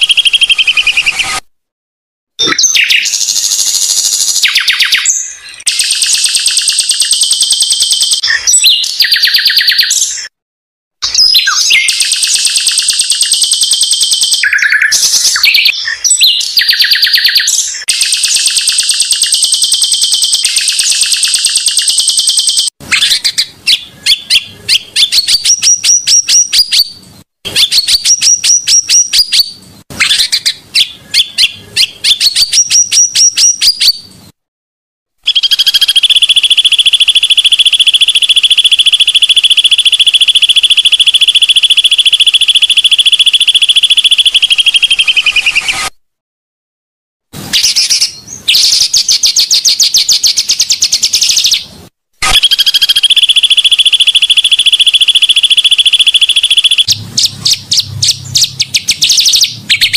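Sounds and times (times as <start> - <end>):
bird song with rattling trills: 2.6 - 10.1, 11.2 - 27.0, 52.6 - 59.9.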